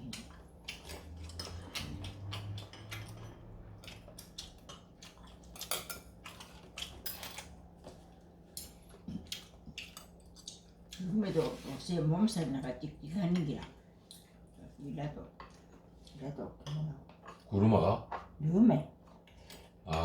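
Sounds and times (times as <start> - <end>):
utensils clinking against bowls: 5.3 - 7.6.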